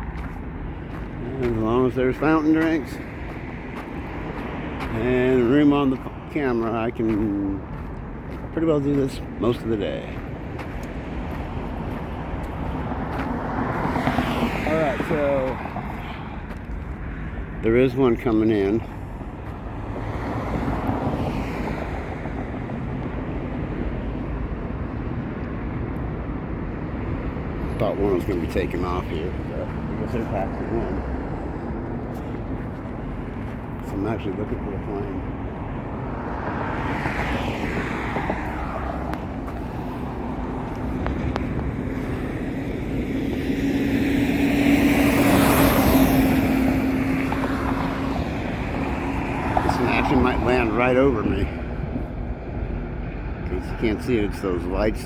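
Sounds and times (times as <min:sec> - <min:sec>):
road traffic: 0:00.0 - 0:55.0
vehicle passing close: 0:27.4 - 0:52.0.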